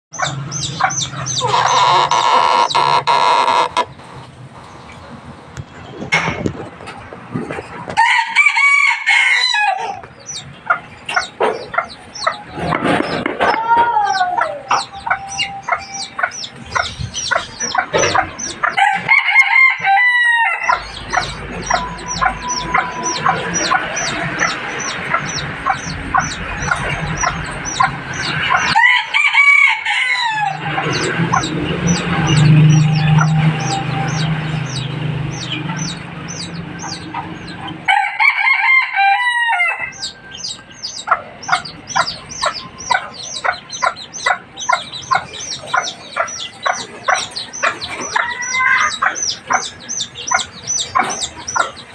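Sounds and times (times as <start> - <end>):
lovebirds chirping: 0.1 - 6.5, 9.8 - 18.9, 20.6 - 28.8, 30.0 - 37.9, 39.8 - 51.9
rooster crowing: 8.0 - 10.0, 18.8 - 20.8, 28.7 - 30.9, 37.9 - 40.3.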